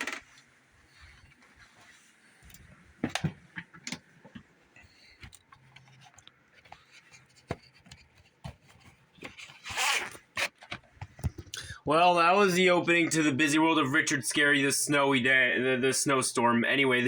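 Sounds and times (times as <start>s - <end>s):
faint background hum: 0.0s - 17.0s.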